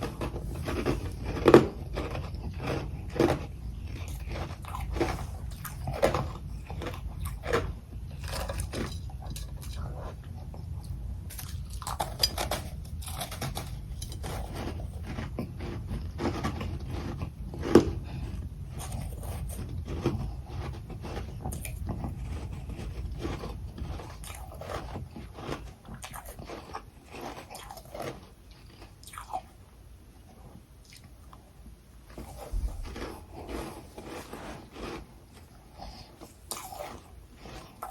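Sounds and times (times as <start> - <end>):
person crunching ice: 0.0 - 7.6, 11.4 - 18.2, 32.2 - 37.9.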